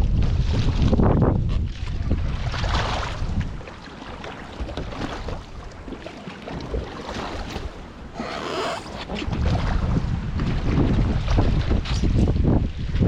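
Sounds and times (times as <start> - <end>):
paddle splashing in water: 4.0 - 9.8.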